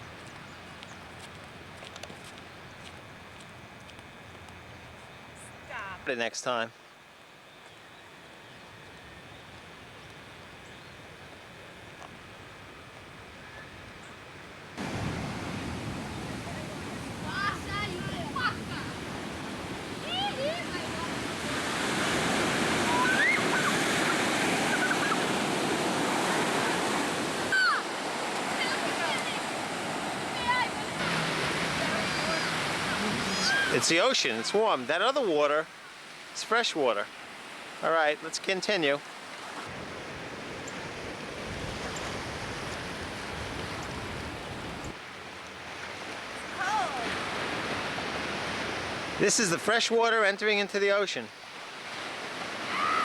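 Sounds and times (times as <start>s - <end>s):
wind rumble on microphone: 8.8s - 27.5s, 39.7s - 45.0s
ocean surf washing: 14.7s - 53.0s.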